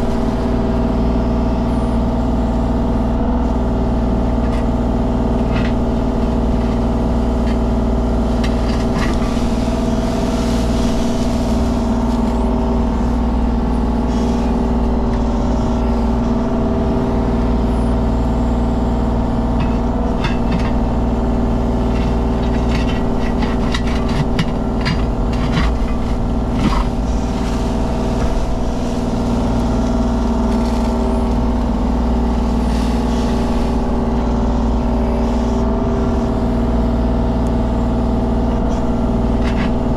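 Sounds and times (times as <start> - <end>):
excavator diesel engine running: 0.0 - 39.9
sharp clicks and knocks: 21.8 - 27.0.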